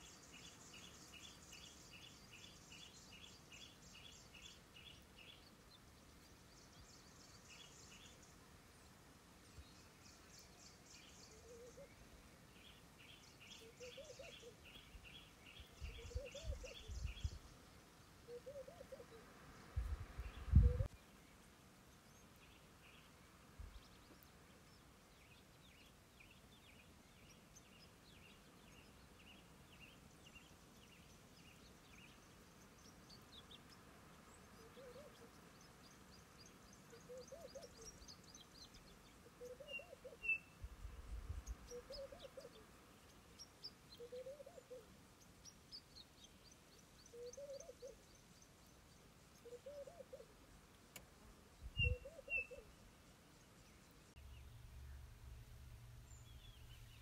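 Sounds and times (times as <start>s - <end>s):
low rising and falling bird call: 41.7s - 42.6s, 44.0s - 44.9s, 47.0s - 48.1s, 49.4s - 50.4s, 51.8s - 52.8s
high bird twittering: 51.8s - 52.7s.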